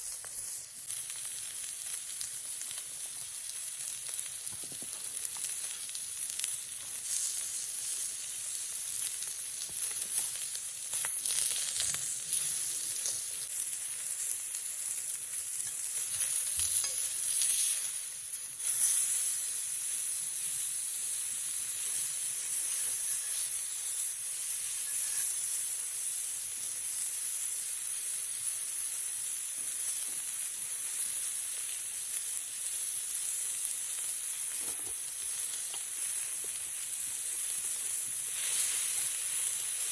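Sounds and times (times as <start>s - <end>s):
meat sizzling on a griddle: 0.0s - 39.9s.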